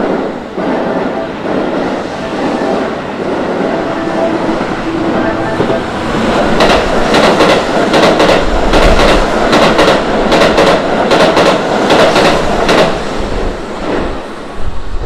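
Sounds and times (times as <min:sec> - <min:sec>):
train wheels clattering over rail joints: 0:05.6 - 0:13.0.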